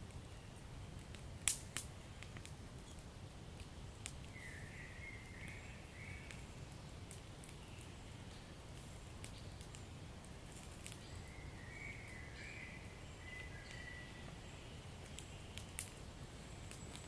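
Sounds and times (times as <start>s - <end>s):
faint wavering hiss: 0.0s - 17.0s
fire crackling: 0.0s - 17.0s
low rumble of flames: 0.0s - 17.0s
sharp pops of fire: 0.9s - 4.5s, 5.4s - 11.0s, 15.0s - 16.0s.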